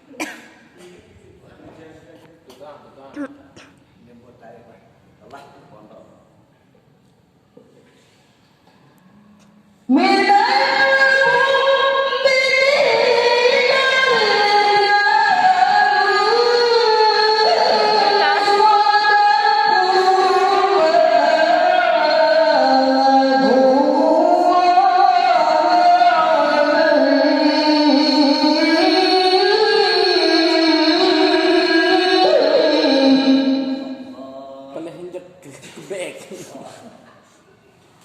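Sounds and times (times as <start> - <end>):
person chanting recitation: 9.2 - 35.0.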